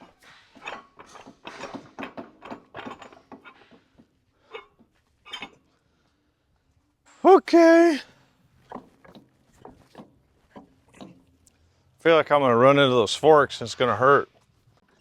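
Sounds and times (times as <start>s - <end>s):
metallic clanks and knocks: 0.6s - 3.6s.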